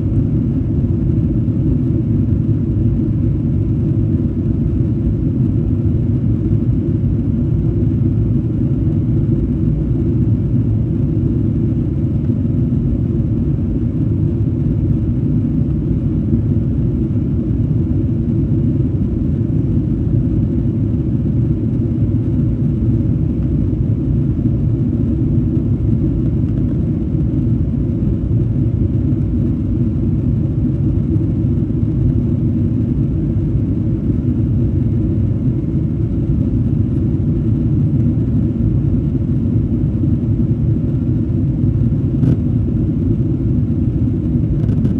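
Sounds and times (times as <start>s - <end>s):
jet engines and airflow rumble: 0.0s - 44.9s.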